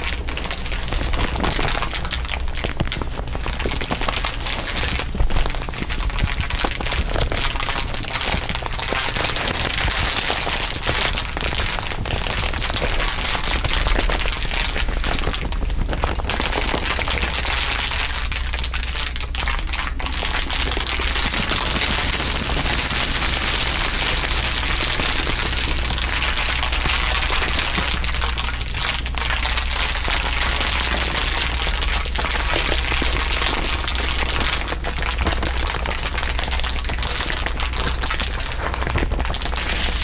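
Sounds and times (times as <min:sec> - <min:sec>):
dense crinkling crackle: 0:00.0 - 0:40.0
steady low hum: 0:00.0 - 0:40.0.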